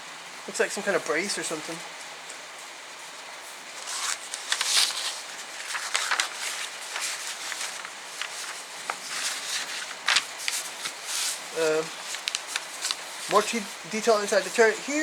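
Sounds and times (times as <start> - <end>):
paper rustling and crinkling: 3.4 - 15.0.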